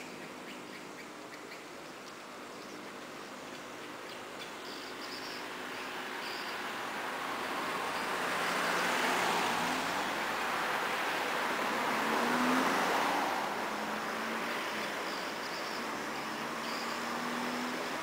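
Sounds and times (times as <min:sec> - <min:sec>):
road traffic passing: 0:00.0 - 0:18.0
faint high chirps: 0:03.5 - 0:06.6, 0:14.4 - 0:17.8.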